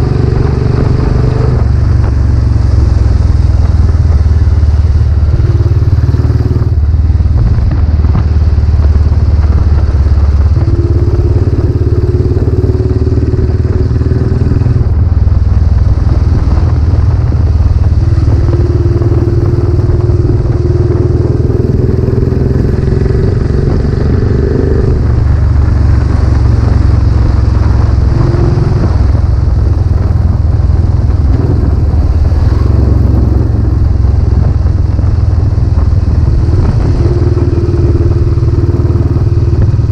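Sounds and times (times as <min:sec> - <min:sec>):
higher engine tone: 0:00.0 - 0:39.9
motorcycle exhaust note: 0:00.0 - 0:39.9.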